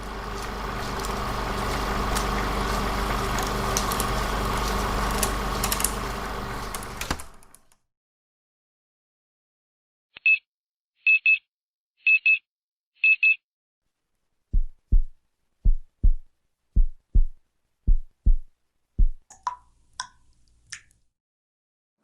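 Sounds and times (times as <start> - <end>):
heartbeat-like double thump: 14.6 - 16.2, 16.8 - 19.2.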